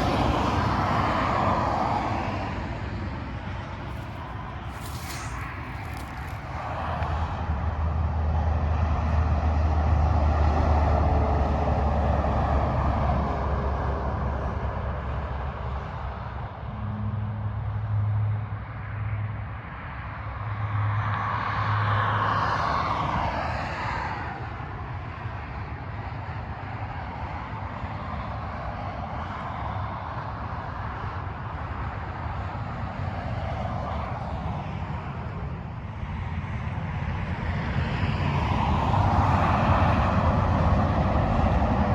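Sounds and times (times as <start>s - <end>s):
freeway traffic passing: 0.0s - 41.9s
tyre hum: 3.9s - 6.6s.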